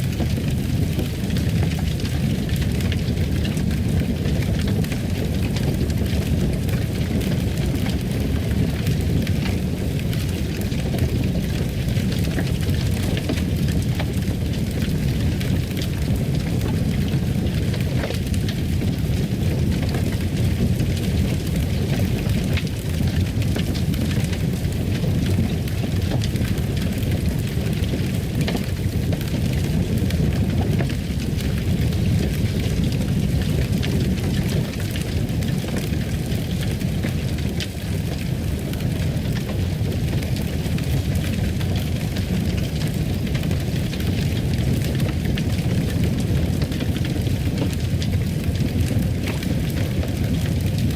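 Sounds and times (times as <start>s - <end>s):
fire pops and snaps: 0.0s - 50.9s
fire rumbling: 0.0s - 50.9s.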